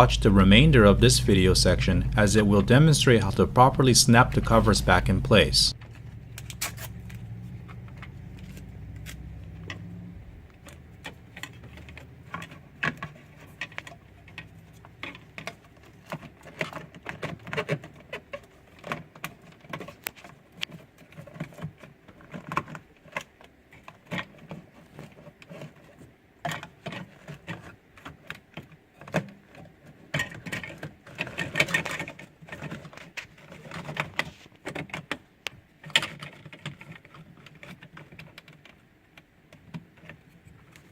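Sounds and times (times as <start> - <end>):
low hum: 0.0 - 15.1.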